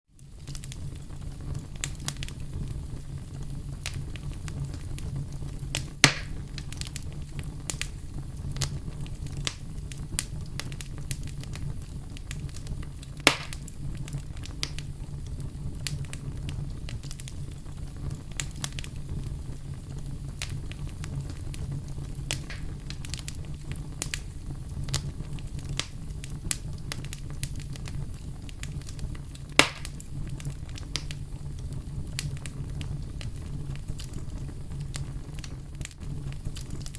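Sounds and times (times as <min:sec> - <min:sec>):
fire crackling in fireplace: 0:00.1 - 0:36.9
low rumble of fire: 0:00.1 - 0:36.9
sharp loud pops: 0:06.0 - 0:06.4, 0:13.3 - 0:13.6, 0:29.6 - 0:29.9.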